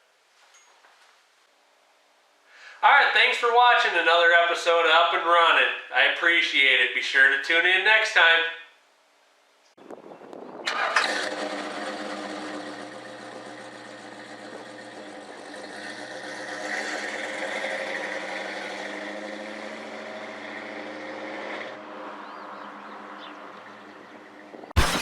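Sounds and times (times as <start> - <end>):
car engine running: 10.7 - 23.8.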